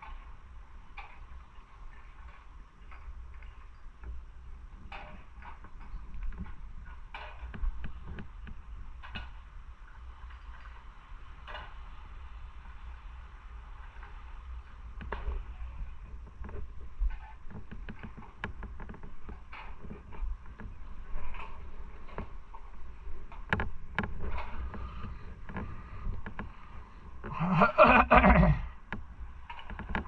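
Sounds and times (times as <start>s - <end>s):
sharp knocks and clicks: 23.3s - 26.6s, 28.9s - 30.0s.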